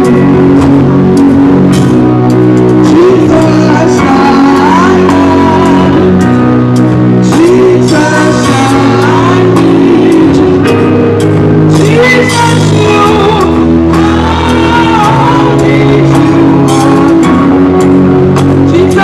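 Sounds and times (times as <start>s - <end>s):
sustained instrumental chords and bass: 0.0s - 19.0s
choir singing: 7.3s - 10.7s, 11.8s - 17.7s.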